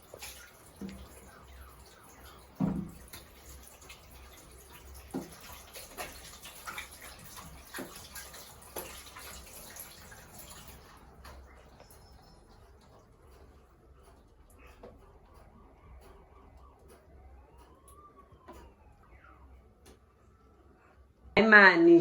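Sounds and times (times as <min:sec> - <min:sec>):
water running: 0:00.0 - 0:19.2
light knocks and clatters: 0:02.6 - 0:03.5.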